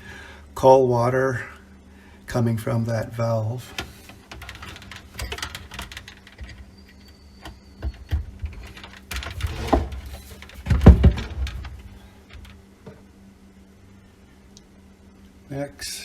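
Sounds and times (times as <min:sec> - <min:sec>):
heavy knocks: 0:09.2 - 0:11.9.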